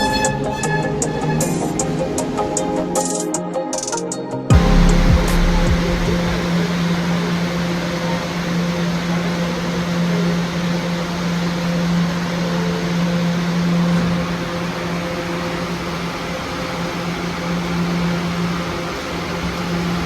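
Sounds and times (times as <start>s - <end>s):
low mechanical drone: 0.0s - 3.0s, 4.4s - 20.0s
constant rushing noise: 0.0s - 20.0s
deep rumble: 4.5s - 7.4s.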